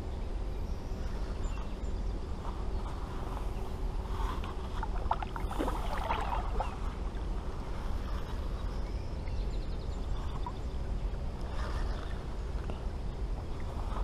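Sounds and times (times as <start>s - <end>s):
water sloshing against kayak hull: 4.3s - 8.0s.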